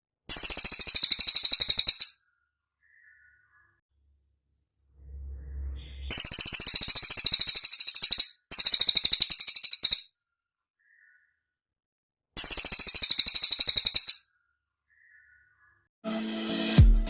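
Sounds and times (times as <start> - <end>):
high bird trills: 0.3 - 3.8, 10.8 - 11.3
faint low rumble: 4.8 - 6.6.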